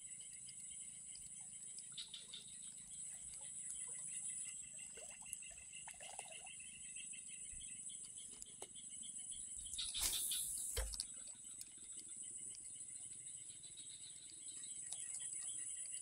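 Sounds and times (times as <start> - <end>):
rapid pulsed chirping: 0.0 - 11.3
high-pitched insect drone: 9.4 - 11.0.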